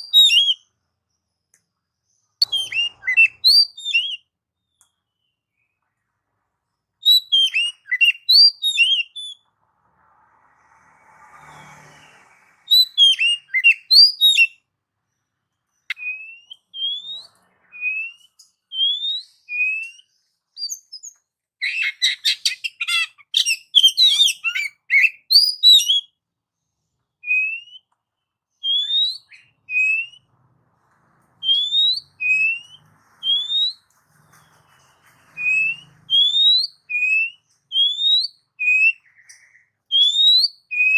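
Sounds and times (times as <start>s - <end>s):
bird singing: 0.0s - 6.0s, 6.7s - 9.5s, 11.5s - 26.2s, 27.0s - 30.3s, 31.4s - 40.9s.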